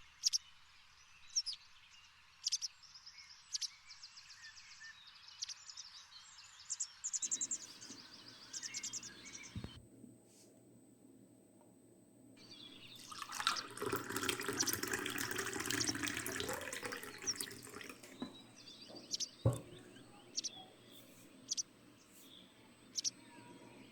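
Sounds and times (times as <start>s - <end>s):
liquid pouring into glass: 12.4s - 20.0s
liquid dripping: 12.4s - 20.6s
glass knock: 13.4s - 19.9s.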